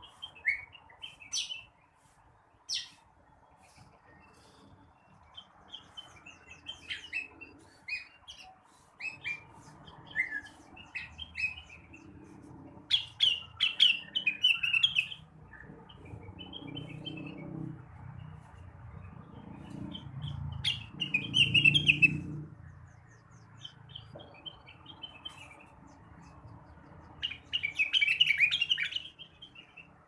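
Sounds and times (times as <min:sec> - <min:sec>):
bird chirping and whistling: 0:05.7 - 0:11.9, 0:12.9 - 0:17.4, 0:19.7 - 0:22.3, 0:27.2 - 0:29.8.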